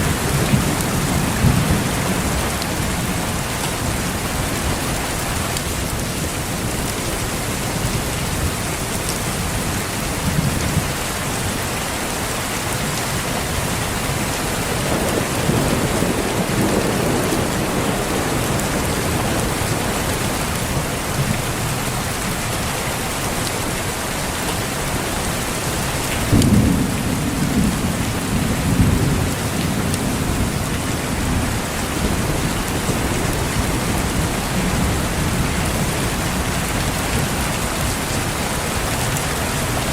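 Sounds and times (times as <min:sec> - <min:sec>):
steady rain: 0:00.0 - 0:39.9
rolling thunder: 0:14.5 - 0:21.5, 0:26.1 - 0:38.4.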